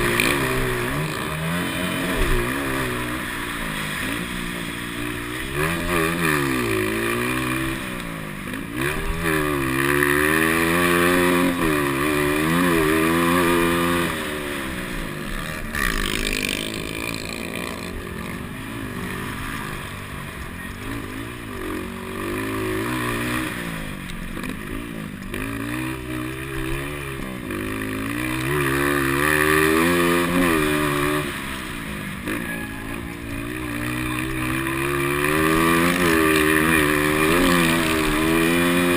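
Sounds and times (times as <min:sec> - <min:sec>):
motocross engines revving: 0:00.0 - 0:38.9.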